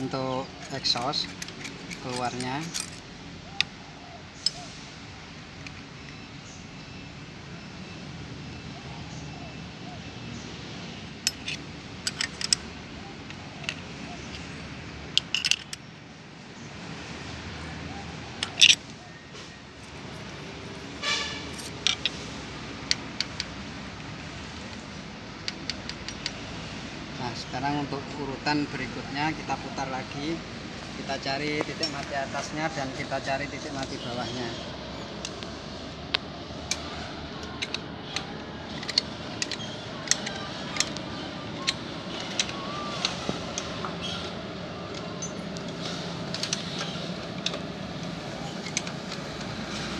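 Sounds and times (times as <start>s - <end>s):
metal tools clinking on engine: 0.0s - 3.8s, 4.4s - 4.7s, 11.0s - 15.9s, 17.6s - 26.5s, 27.2s - 49.9s.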